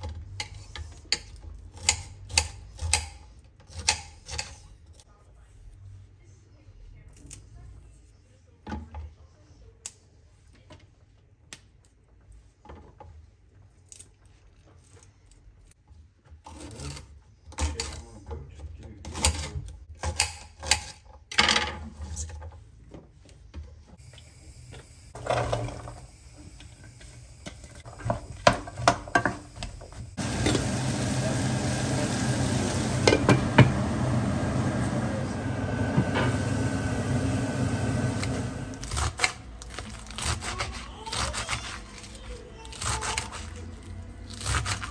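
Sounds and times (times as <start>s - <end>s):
kitchen utensils and dishes clinking: 30.2s - 39.4s.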